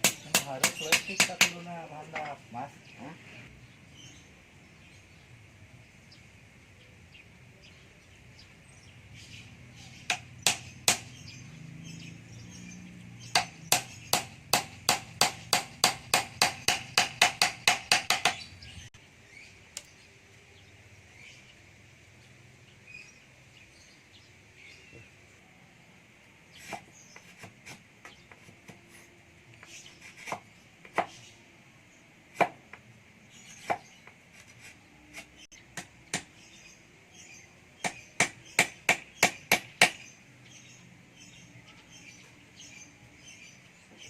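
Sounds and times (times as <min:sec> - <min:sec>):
hand tool striking wood: 0:00.0 - 0:02.4, 0:10.1 - 0:11.2, 0:13.3 - 0:18.4.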